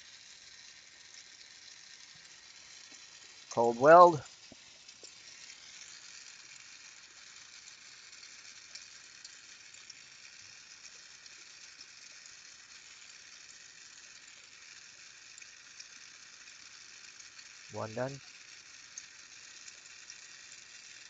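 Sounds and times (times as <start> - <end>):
faint ticks: 0.0 - 3.6, 4.2 - 21.0
torch flame hissing: 0.8 - 6.1.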